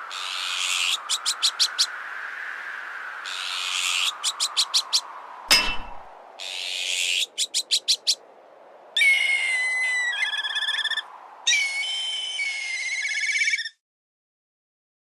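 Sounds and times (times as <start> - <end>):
faint steady hiss: 0.0 - 12.9
magpie harsh alarm call: 3.3 - 4.9, 6.4 - 8.2, 9.0 - 13.7
kite whistling trill call: 9.0 - 13.8.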